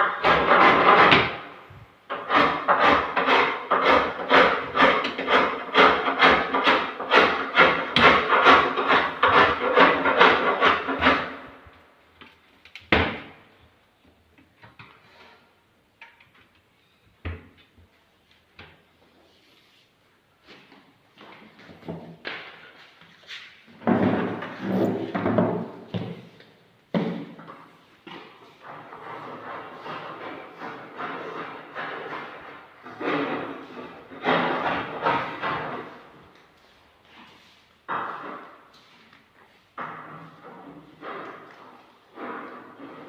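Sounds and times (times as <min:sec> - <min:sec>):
hand tool rasping wood: 0:00.0 - 0:11.6.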